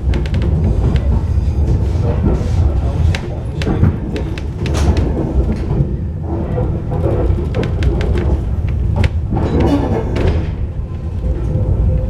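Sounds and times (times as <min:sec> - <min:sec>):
train rumbling along track: 0:00.0 - 0:12.0
wheel clicks and knocks: 0:06.8 - 0:10.5.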